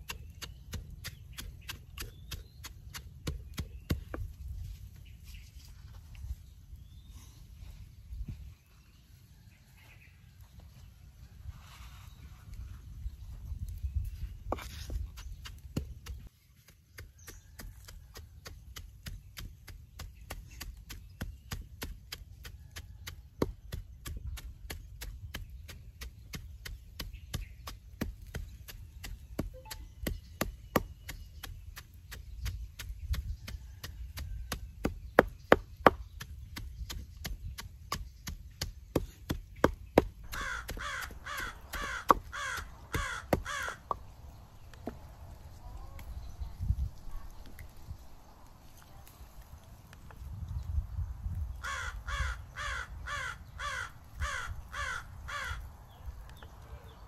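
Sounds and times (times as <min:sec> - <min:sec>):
pestle pounding in a mortar: 0:16.9 - 0:44.1
bird calling: 0:40.0 - 0:44.1, 0:51.6 - 0:55.7.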